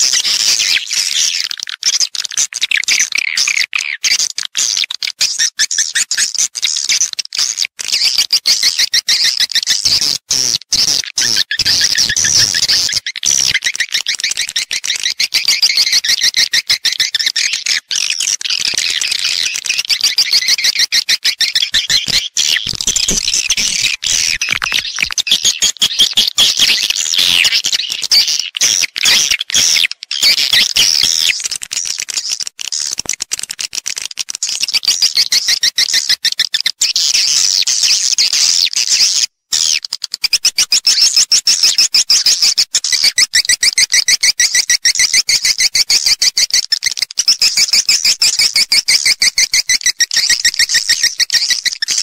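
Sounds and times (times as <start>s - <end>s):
swiftlets chirping and clicking: 11.4s - 28.1s.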